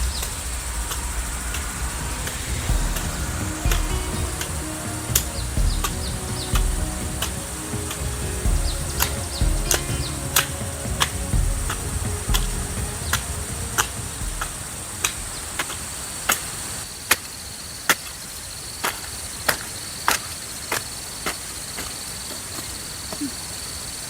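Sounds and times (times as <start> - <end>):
high buzz of insects: 0.0 - 24.0.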